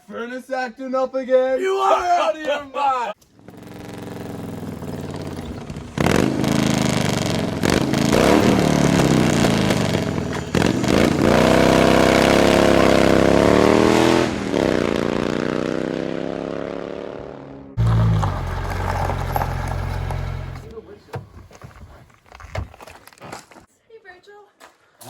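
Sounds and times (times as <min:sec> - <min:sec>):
motorcycle engine revving: 0:03.3 - 0:20.7.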